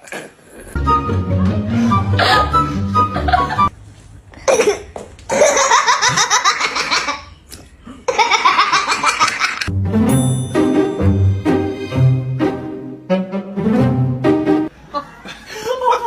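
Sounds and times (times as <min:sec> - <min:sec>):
music: 0:00.8 - 0:03.7, 0:09.7 - 0:14.7.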